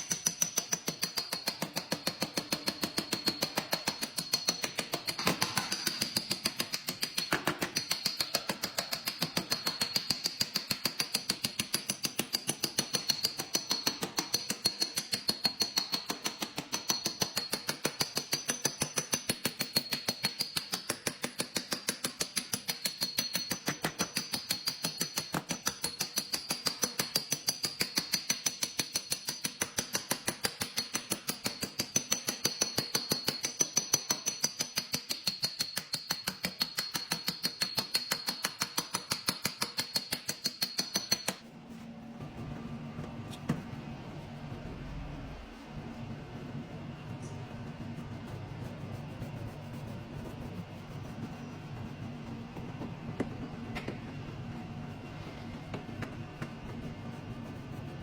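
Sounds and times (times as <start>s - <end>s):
rapid hammer tapping: 0.0s - 41.4s.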